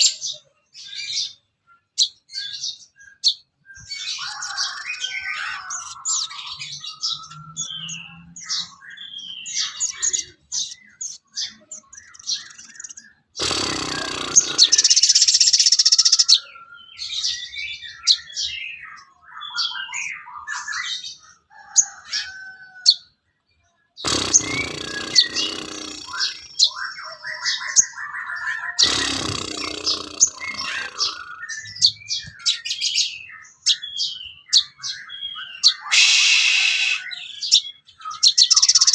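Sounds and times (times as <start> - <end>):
songbird chirps and trills: 0.0 - 38.9
harsh noisy bursts: 13.4 - 15.2, 24.0 - 26.5, 28.8 - 31.4.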